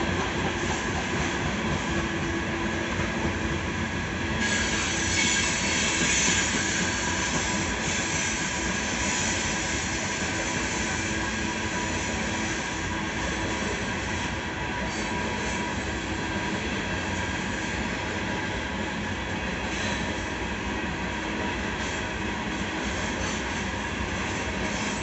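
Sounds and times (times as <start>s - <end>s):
train wheels on rail: 0.0s - 25.0s.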